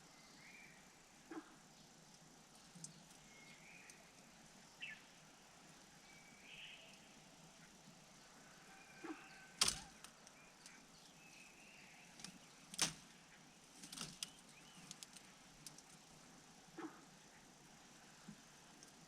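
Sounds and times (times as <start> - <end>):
faint high bird chirps: 2.9 - 4.2, 4.8 - 5.1, 6.0 - 7.8, 8.6 - 12.7.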